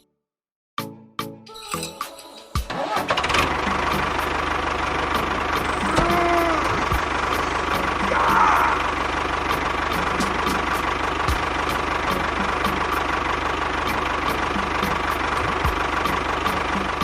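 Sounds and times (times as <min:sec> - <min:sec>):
small motor running: 0:05.6 - 0:09.1.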